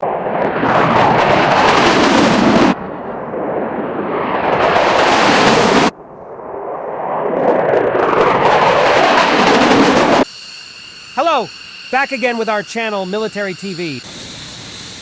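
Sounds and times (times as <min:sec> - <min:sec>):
loud rushing roar: 0:00.0 - 0:10.2.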